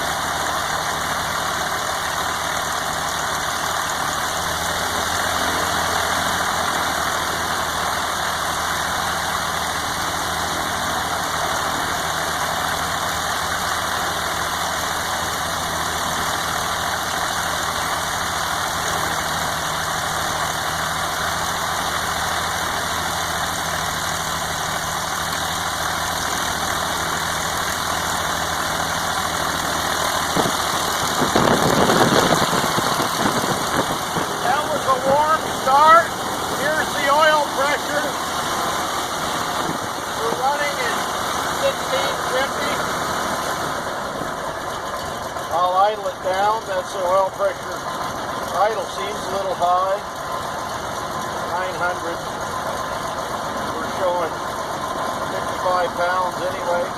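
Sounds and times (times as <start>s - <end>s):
propeller aircraft engine running: 0.0s - 56.9s.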